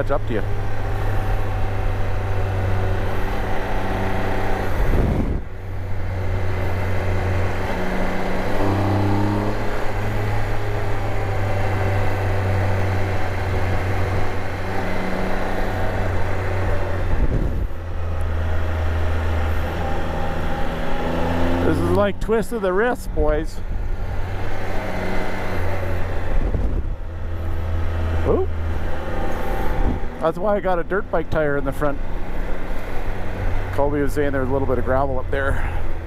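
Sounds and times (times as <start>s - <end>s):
motorcycle engine running: 0.0s - 36.0s
wind noise on microphone: 4.6s - 5.7s, 16.9s - 17.9s, 26.1s - 27.1s, 29.4s - 30.2s.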